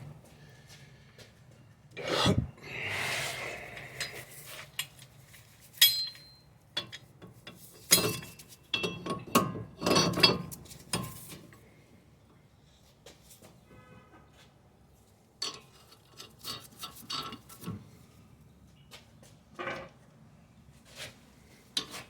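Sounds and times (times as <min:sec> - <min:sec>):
metal tools scraping: 0:03.4 - 0:07.0
short metallic ring: 0:05.8 - 0:06.5
metal parts clinking and knocking: 0:05.8 - 0:11.2.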